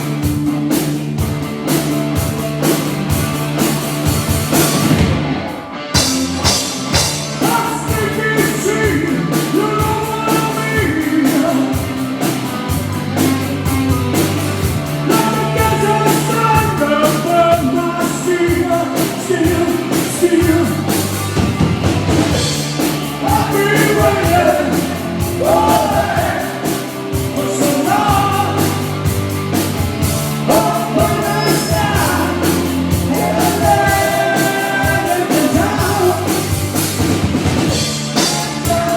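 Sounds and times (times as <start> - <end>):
live rock band playing: 0.0 - 38.9
man singing lead vocal: 7.4 - 12.0, 15.0 - 21.0, 23.0 - 29.0, 30.4 - 36.6, 38.2 - 38.9.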